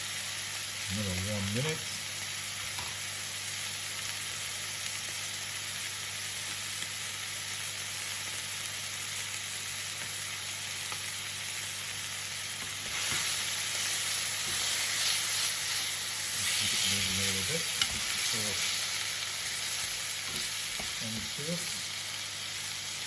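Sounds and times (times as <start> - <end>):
steaks sizzling in a pan: 0.0 - 23.0.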